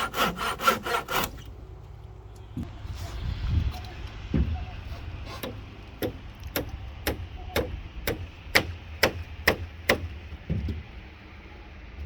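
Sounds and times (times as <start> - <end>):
hammer striking nail: 5.4 - 10.1.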